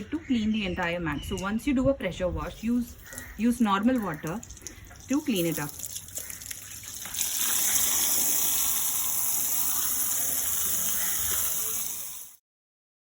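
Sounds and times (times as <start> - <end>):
water spraying onto a mat: 4.5 - 12.4.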